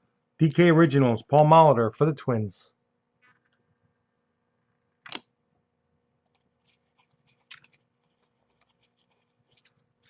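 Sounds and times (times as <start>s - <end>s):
cards rustling and clicking: 6.3s - 10.0s.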